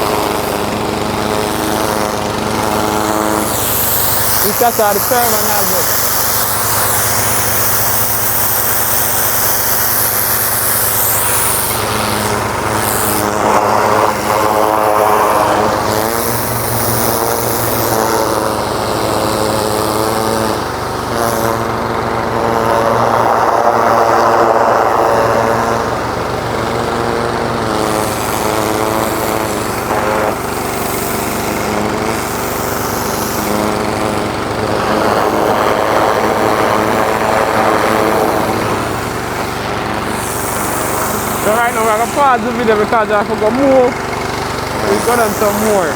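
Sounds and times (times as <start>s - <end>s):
engine running: 0.0s - 45.9s.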